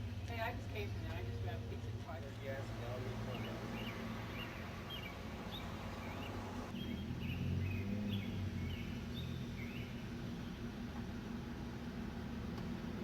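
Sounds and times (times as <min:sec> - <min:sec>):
steady low hum: 0:00.0 - 0:13.0
small birds chirping: 0:02.2 - 0:10.8.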